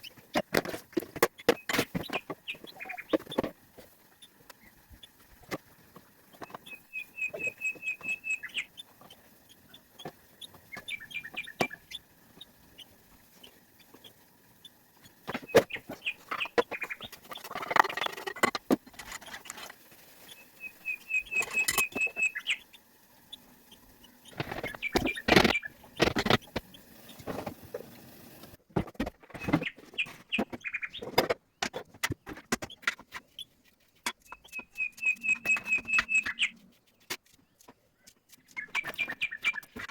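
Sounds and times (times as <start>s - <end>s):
small bird trilling: 6.4s - 8.9s, 20.3s - 26.1s, 34.2s - 36.6s
sharp clicks and knocks: 15.0s - 19.9s, 24.0s - 39.9s.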